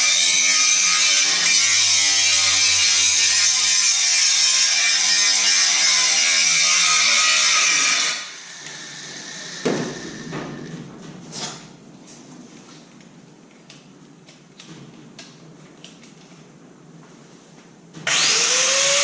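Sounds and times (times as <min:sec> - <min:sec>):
angle grinder grinding steel: 0:00.0 - 0:10.2.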